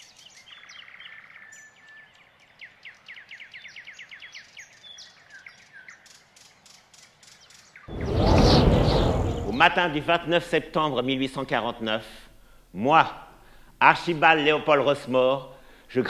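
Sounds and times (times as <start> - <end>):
descending whistled bird notes: 7.9 - 9.8.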